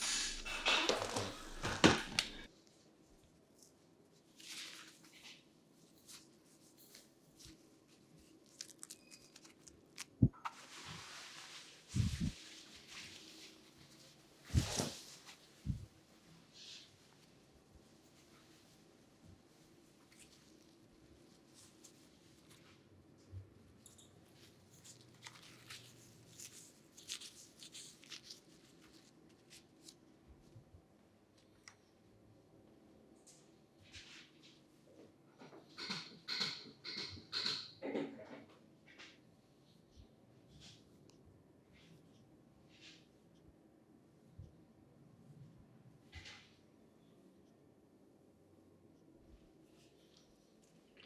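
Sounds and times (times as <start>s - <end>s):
steady hiss: 0.0s - 2.5s.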